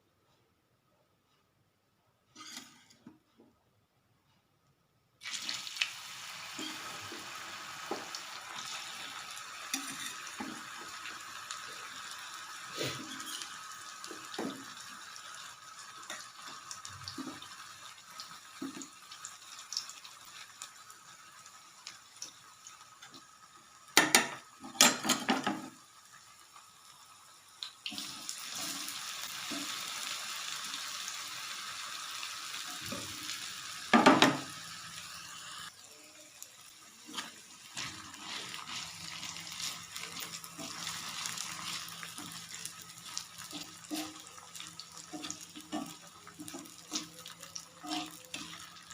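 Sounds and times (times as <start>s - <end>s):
utensils or pots clattering: 24.0s - 25.7s.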